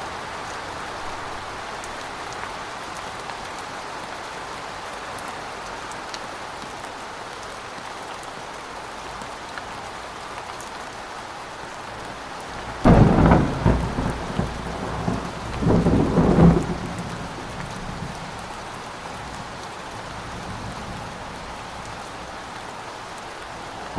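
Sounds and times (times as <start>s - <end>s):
steady rain falling: 0.0s - 23.9s
thunder clap rumbling: 12.6s - 18.5s, 23.6s - 23.9s.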